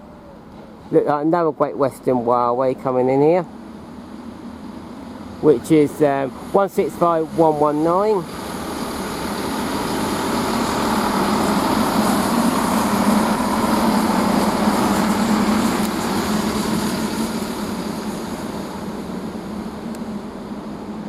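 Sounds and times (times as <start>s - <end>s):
diesel train engines: 0.0s - 21.0s
train wheels on rails: 5.7s - 19.9s.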